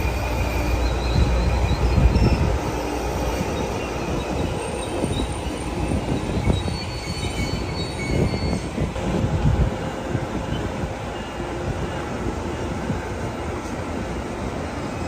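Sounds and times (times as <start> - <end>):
high-pitched wheel squeals: 0.0 - 9.0
train cars rumbling: 0.0 - 15.0.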